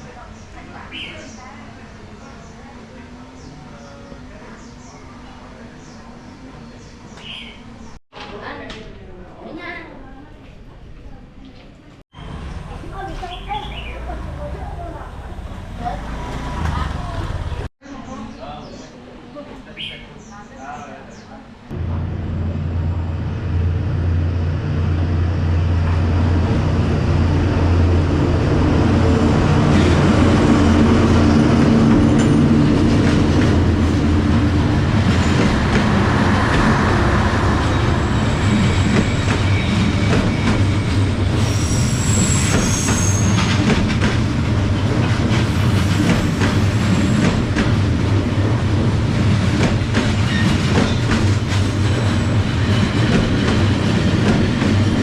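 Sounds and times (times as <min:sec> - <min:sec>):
locomotive engine drone: 0:12.2 - 0:17.7, 0:21.7 - 0:41.4
train cars clacking on rails: 0:29.6 - 0:55.0
train wheel squeal: 0:37.6 - 0:43.8, 0:50.2 - 0:51.2.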